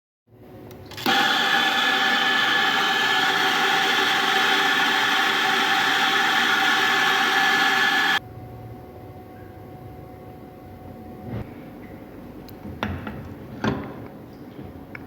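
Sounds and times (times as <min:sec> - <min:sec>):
espresso machine rushing: 0:00.9 - 0:08.2.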